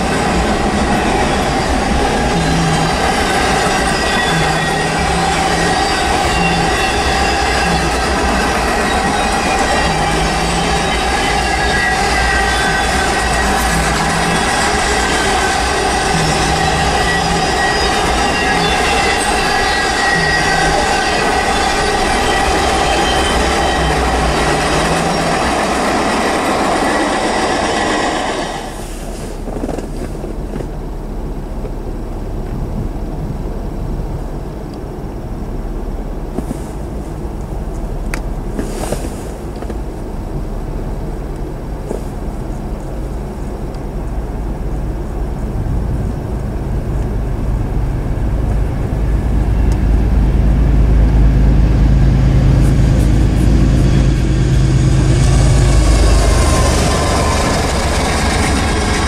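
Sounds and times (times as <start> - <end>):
train wheel squeal: 0.0 - 30.8, 38.5 - 40.2, 47.7 - 59.0
diesel locomotive drone: 0.0 - 59.0
freight train rolling past: 0.0 - 59.0
rail rumble: 0.0 - 59.0.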